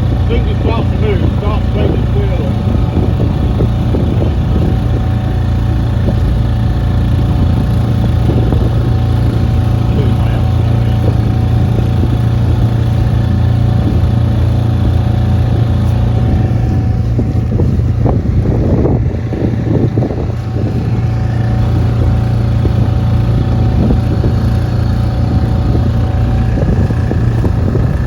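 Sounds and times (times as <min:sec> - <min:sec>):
boat engine humming: 0:00.0 - 0:28.0
thin steady whine: 0:00.0 - 0:28.0.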